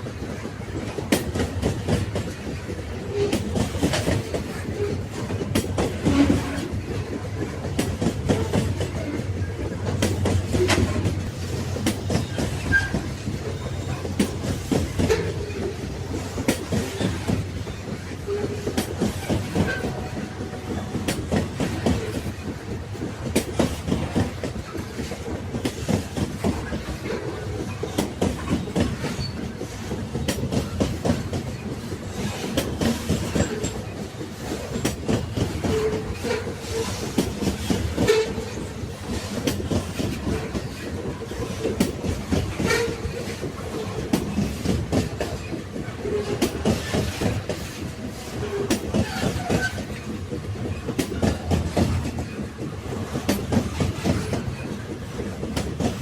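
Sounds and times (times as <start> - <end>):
railway carriage rumble: 0.0 - 56.0
train wheels clacking on rails: 0.0 - 56.0
brief squeaks and rattles: 48.7 - 50.0.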